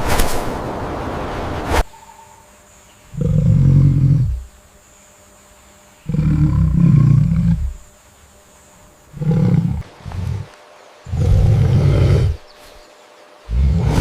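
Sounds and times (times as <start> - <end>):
large animal roaring: 3.1 - 4.5, 6.0 - 7.8, 9.1 - 10.5, 11.1 - 12.5, 13.5 - 14.0.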